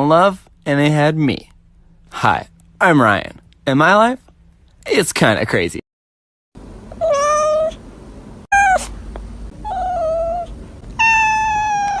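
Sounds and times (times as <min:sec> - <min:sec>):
cat meowing: 0:07.0 - 0:07.8, 0:08.5 - 0:09.0, 0:09.6 - 0:12.0.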